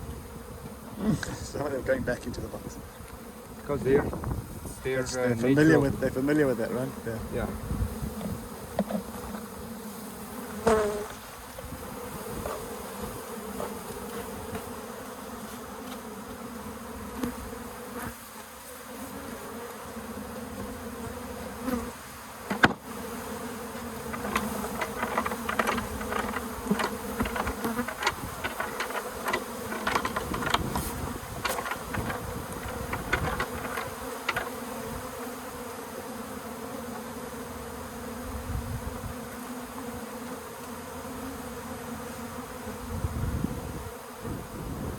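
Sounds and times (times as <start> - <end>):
bee colony buzzing: 0.0 - 44.9
single bee flying past: 0.0 - 44.9
clicks and rustles of handling: 24.1 - 34.6.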